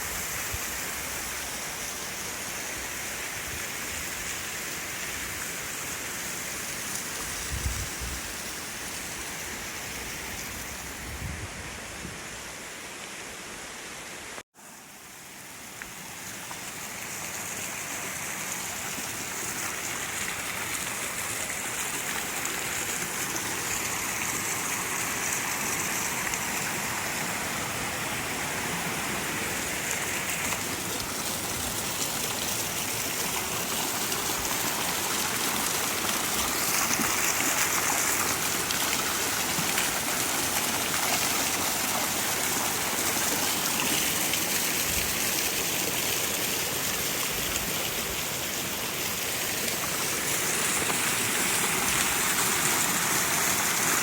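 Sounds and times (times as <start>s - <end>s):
waterfall rushing: 16.0s - 54.0s.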